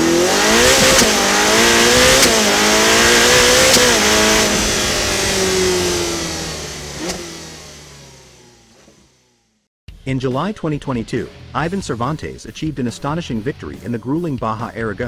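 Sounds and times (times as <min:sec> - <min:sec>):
racing car engine accelerating: 0:00.0 - 0:09.6.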